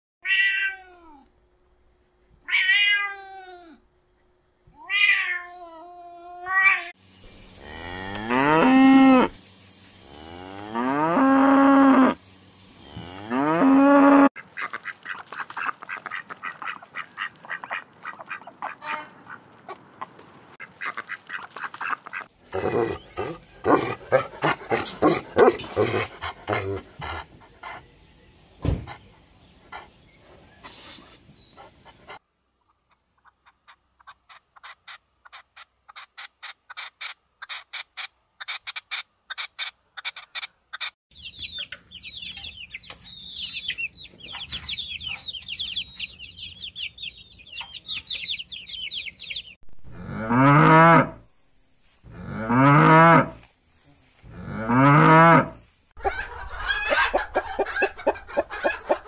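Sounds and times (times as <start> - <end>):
cat meowing: 0.2 - 1.2, 2.5 - 3.8, 4.8 - 6.9
cows mooing: 7.6 - 9.4, 10.0 - 12.2, 12.8 - 14.3, 49.9 - 51.2, 52.1 - 53.4, 54.3 - 55.6.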